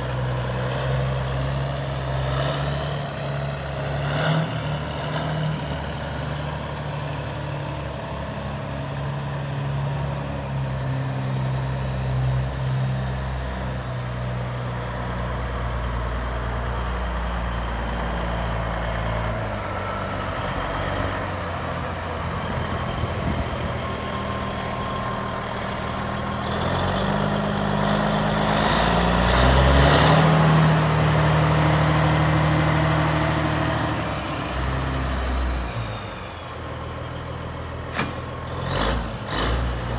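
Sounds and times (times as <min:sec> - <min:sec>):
truck diesel engine running: 0:00.0 - 0:39.9
short hiss: 0:37.9 - 0:38.4.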